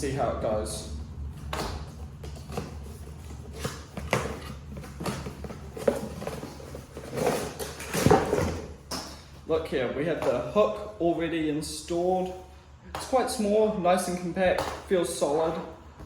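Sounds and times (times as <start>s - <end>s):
cardboard packaging rustling: 2.0s - 9.2s.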